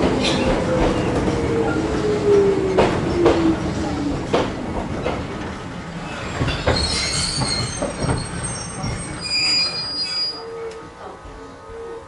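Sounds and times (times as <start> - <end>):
railcar rumbling: 0.0 - 12.0
high-pitched wheel squeal: 6.8 - 10.8.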